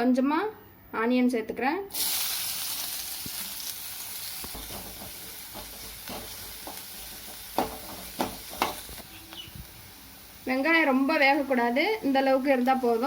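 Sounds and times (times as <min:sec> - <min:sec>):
onion sizzling in hot oil: 0:01.9 - 0:13.0.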